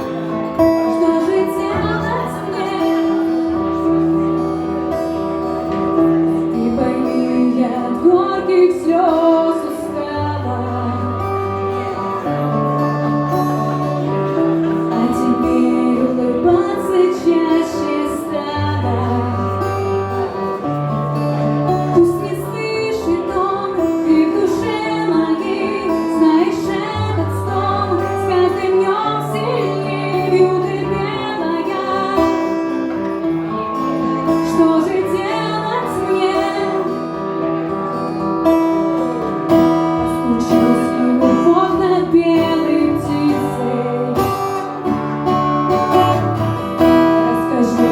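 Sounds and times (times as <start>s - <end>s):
woman singing slow song: 0.0s - 5.0s, 5.6s - 20.4s, 21.7s - 33.0s, 33.6s - 37.5s, 39.6s - 47.9s.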